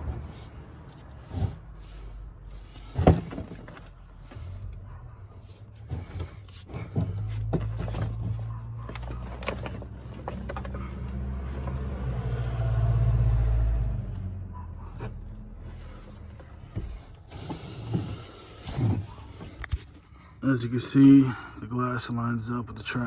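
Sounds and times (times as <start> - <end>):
parts clicking and knocking: 0.0 - 12.0.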